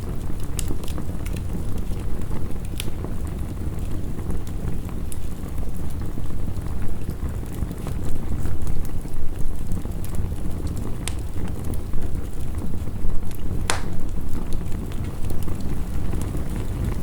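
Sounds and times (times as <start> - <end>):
wood fire crackling: 0.0 - 17.0
sharp pops from fire: 0.3 - 3.4, 13.2 - 17.0.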